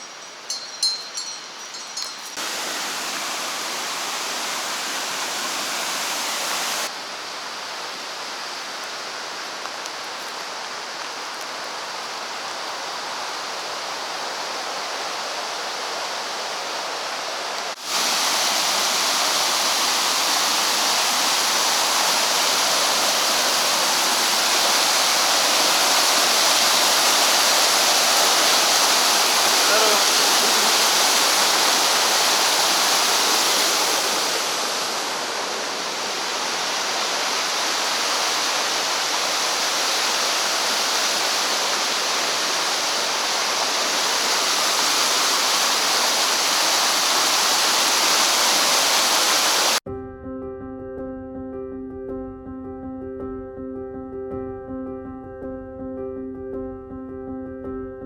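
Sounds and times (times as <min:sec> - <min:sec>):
light ringing clinks: 0:00.0 - 0:02.4
river water rushing: 0:00.0 - 0:49.8.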